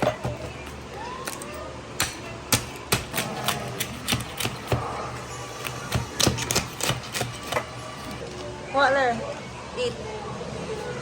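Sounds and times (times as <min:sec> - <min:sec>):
knife chopping on cutting board: 0:02.0 - 0:05.0, 0:05.6 - 0:07.7.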